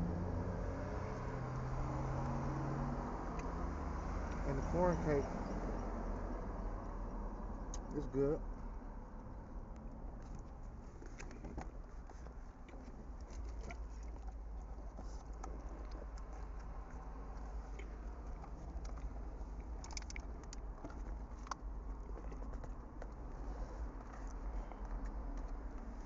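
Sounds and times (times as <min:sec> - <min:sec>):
person chewing food: 0:12.0 - 0:26.0.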